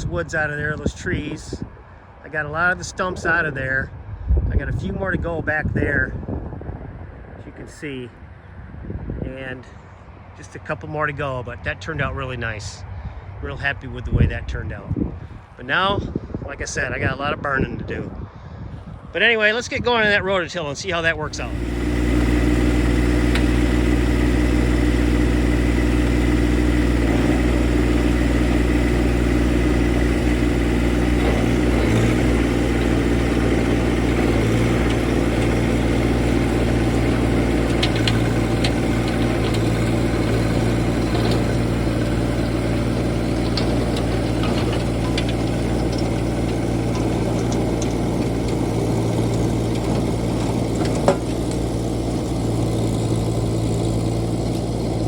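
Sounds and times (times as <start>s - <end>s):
tractor diesel engine running: 19.2s - 55.0s.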